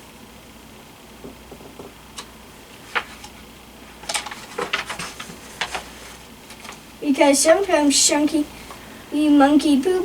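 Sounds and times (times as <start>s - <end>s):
page turning rustle: 2.7s - 3.4s, 4.0s - 6.9s.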